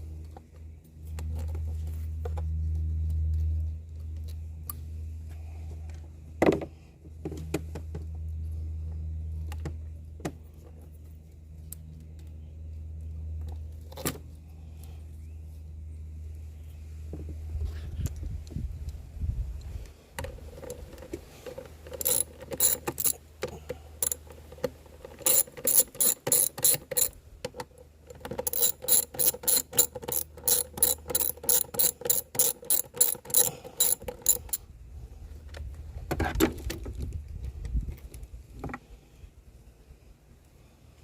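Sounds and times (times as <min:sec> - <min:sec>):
ratchet wrench clicking: 0:21.9 - 0:23.2, 0:24.0 - 0:24.2, 0:25.2 - 0:27.2, 0:28.3 - 0:34.6.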